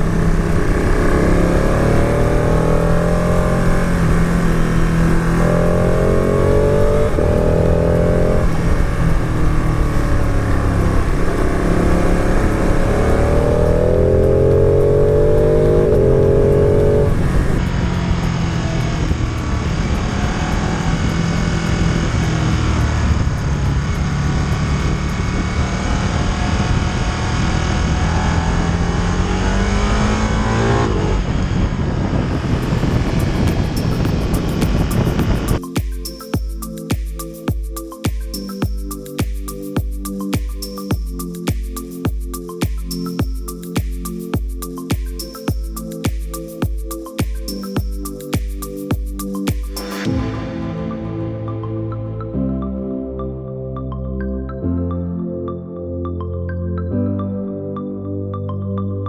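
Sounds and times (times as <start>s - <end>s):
motorcycle engine revving through gears: 0.0s - 35.6s
wind noise: 0.0s - 35.6s.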